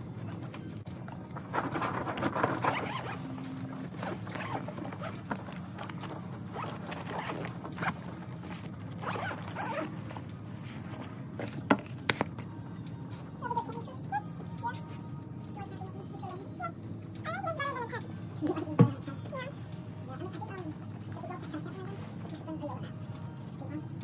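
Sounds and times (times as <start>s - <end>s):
steady low hum: 0.0s - 24.0s
scratchy rasps and rustles: 0.2s - 12.4s.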